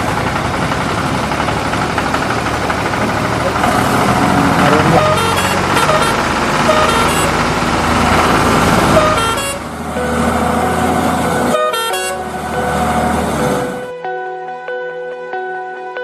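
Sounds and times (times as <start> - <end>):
vehicle engine running: 0.0 - 14.0
short horn toots: 4.6 - 7.3, 8.9 - 9.6, 11.5 - 12.3.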